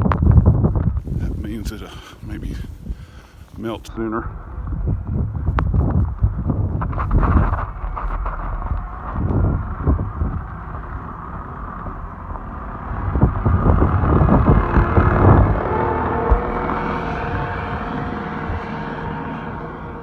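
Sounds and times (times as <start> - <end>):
steady whine: 0.0 - 6.4, 10.8 - 20.0
wind rumbling on microphone: 0.0 - 20.0
motor vehicle running: 4.4 - 20.0.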